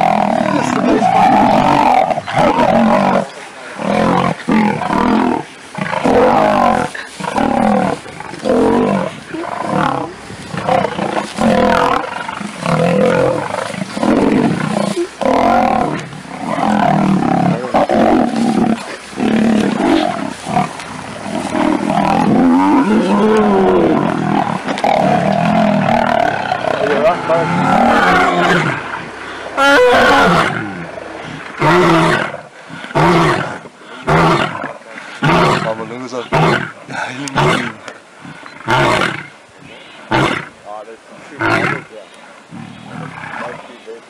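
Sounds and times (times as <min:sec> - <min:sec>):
lions snarling and roaring: 0:00.0 - 0:40.6, 0:41.3 - 0:43.9.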